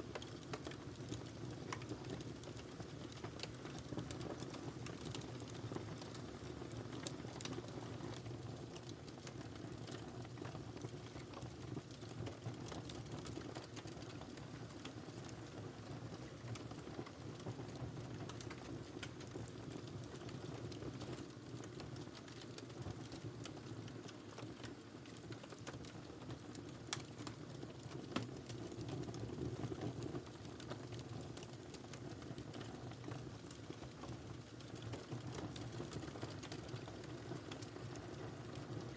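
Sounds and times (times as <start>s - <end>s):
fire crackling and popping: 0.0s - 38.9s
fire rumbling: 26.6s - 38.7s.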